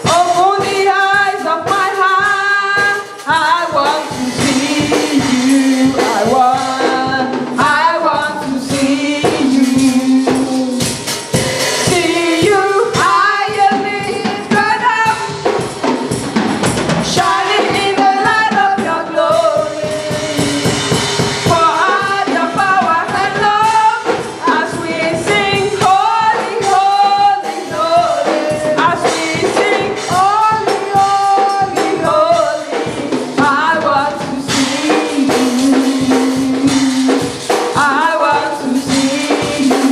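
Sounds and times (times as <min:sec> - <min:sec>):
gospel choir singing: 0:00.0 - 0:39.9.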